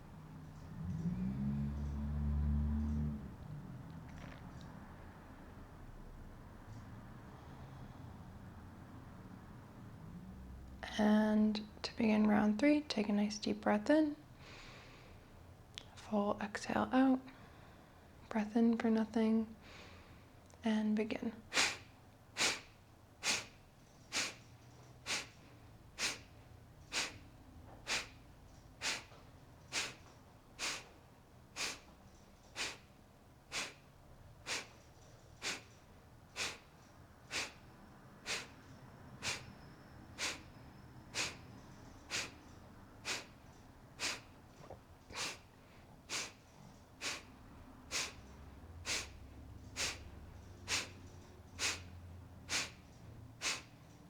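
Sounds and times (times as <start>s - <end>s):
forceful nasal exhalations: 21.5s - 31.0s, 31.6s - 39.5s, 40.2s - 40.5s, 41.1s - 41.4s, 42.0s - 43.4s, 44.0s - 44.4s, 45.1s - 53.8s.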